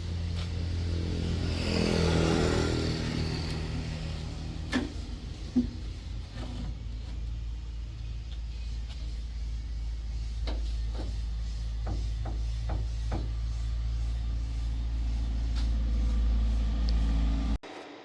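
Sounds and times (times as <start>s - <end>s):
truck engine humming: 0.0s - 17.6s
sharp knocks: 10.4s - 13.5s.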